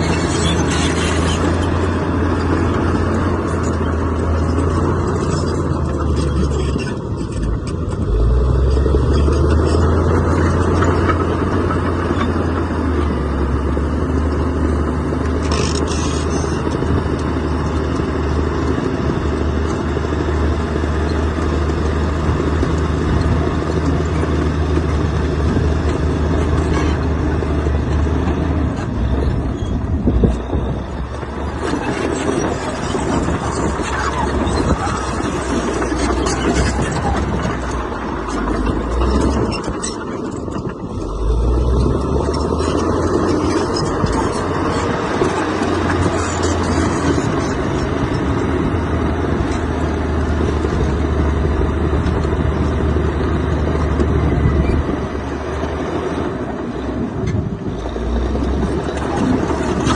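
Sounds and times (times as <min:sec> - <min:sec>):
heavy diesel machinery drone: 0:00.0 - 0:59.9.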